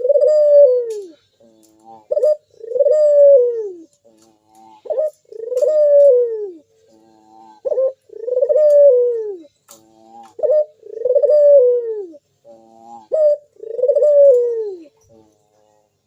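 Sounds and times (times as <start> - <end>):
turtle dove cooing: 0.0 - 15.2.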